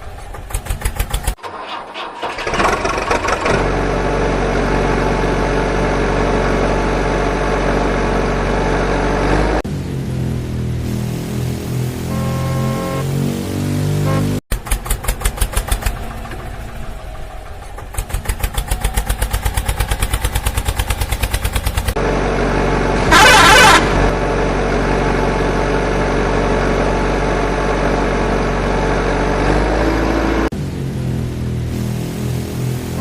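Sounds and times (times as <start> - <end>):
vehicle engine chugging: 0.0 - 6.9, 14.1 - 28.7
short horn blast: 11.0 - 14.4, 23.0 - 24.1.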